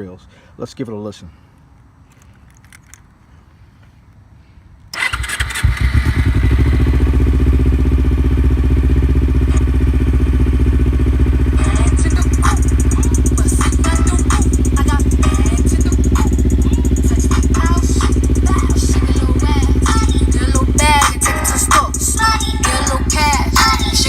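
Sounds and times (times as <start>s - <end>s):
motorcycle engine starting and idling: 4.9s - 24.0s.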